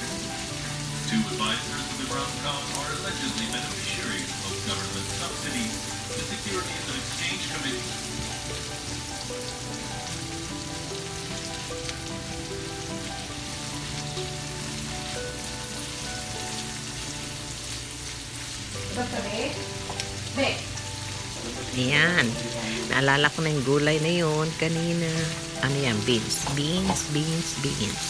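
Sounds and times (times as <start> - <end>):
food sizzling in a frying pan: 0.0 - 28.0
stirring in a pan: 22.4 - 28.0.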